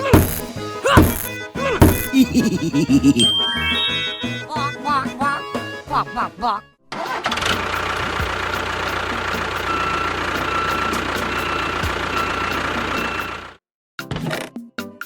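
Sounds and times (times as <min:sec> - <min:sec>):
engine idling: 0:07.1 - 0:13.6.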